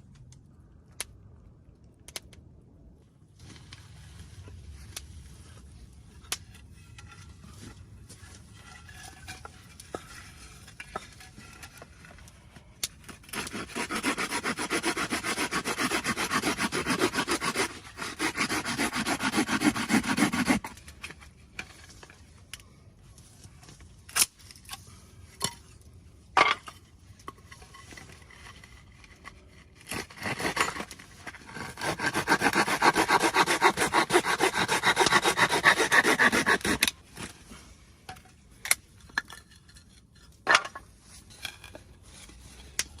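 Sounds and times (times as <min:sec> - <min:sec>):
rapid rubbing strokes: 0:13.4 - 0:20.7, 0:31.6 - 0:36.9.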